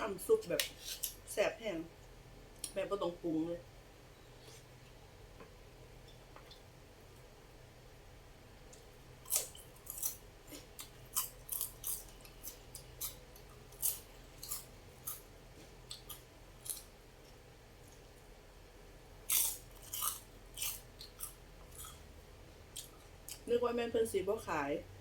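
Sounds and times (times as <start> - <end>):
crisp eating crunches: 8.7 - 18.0, 19.2 - 22.0.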